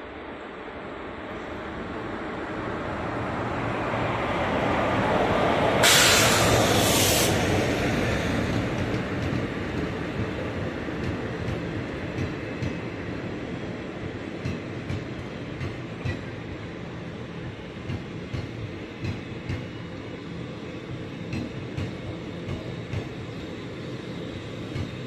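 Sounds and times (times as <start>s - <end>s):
train rumbling on track: 0.0s - 25.0s.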